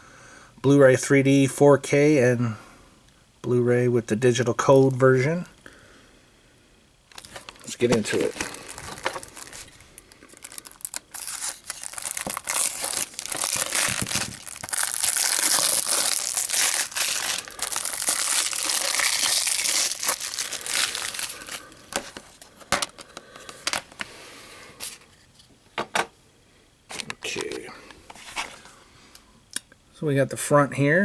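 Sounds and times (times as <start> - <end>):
plastic wrap tearing and crinkling: 7.1 - 22.4.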